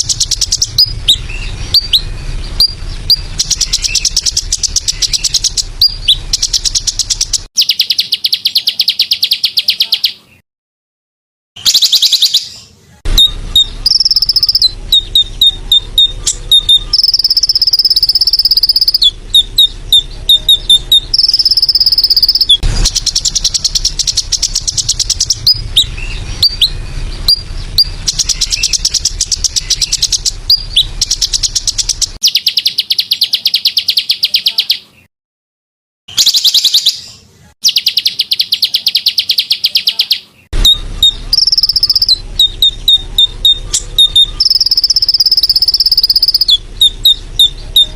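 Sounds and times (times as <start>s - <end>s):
buzzing trills: 0.0s - 7.5s, 13.1s - 32.2s
bird chirps and whistles: 0.0s - 10.4s, 11.6s - 35.1s, 36.1s - 47.9s.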